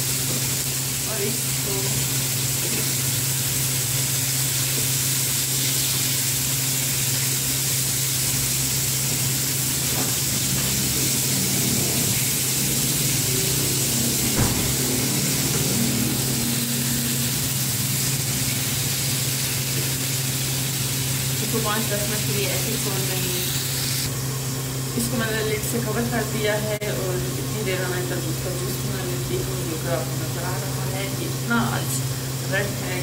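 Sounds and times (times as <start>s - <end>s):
chicken sizzling in oil: 0.0s - 33.0s
low hum: 9.5s - 18.8s.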